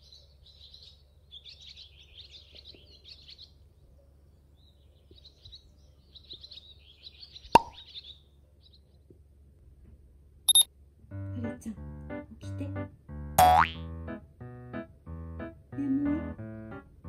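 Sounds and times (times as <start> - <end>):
small birds chirping: 0.0 - 9.3
sharp pop: 7.6 - 7.8.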